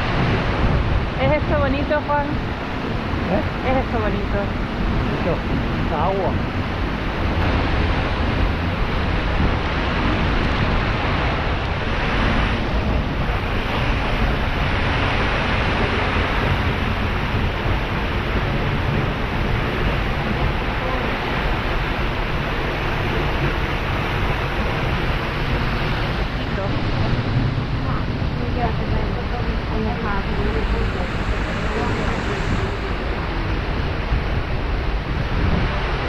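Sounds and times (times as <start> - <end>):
waterfall rushing into pool: 5.0 - 36.0.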